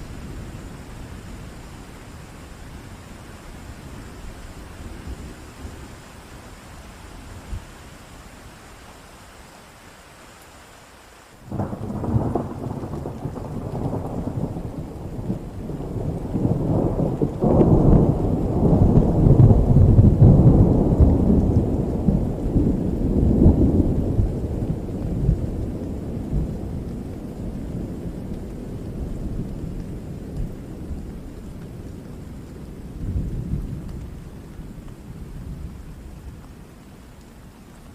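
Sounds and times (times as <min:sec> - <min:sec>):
rain hiss: 0:00.0 - 0:37.9
thunder rumbling: 0:11.5 - 0:36.8.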